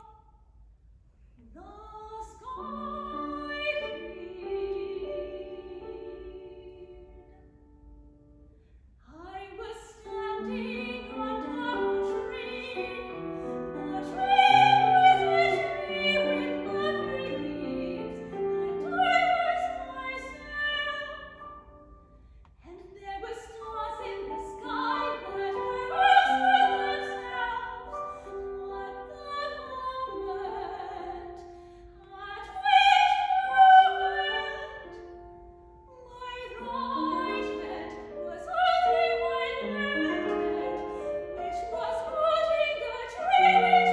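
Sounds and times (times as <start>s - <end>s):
woman singing classical song: 1.4s - 7.7s, 9.0s - 21.9s, 22.6s - 43.9s
piano accompaniment: 10.3s - 22.0s, 32.5s - 43.9s.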